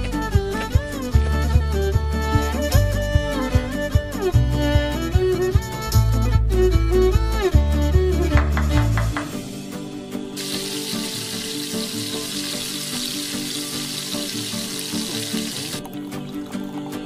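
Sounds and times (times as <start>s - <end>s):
background music: 0.0s - 17.0s
chicken sizzling in a pan: 10.4s - 15.7s
water poured into a pan: 10.4s - 17.0s.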